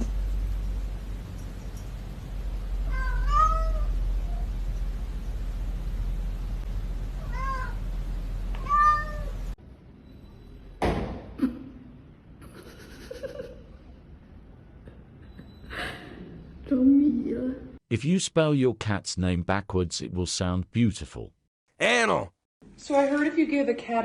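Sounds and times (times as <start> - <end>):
steady low hum: 0.0 - 10.7
cat meowing: 2.9 - 4.5, 7.2 - 7.8, 8.5 - 9.4.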